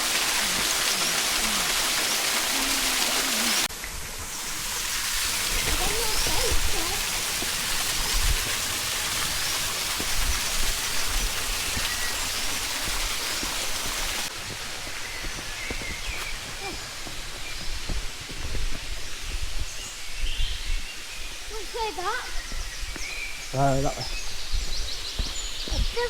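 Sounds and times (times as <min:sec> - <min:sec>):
small waterfall rushing: 0:00.0 - 0:19.8, 0:21.0 - 0:22.2.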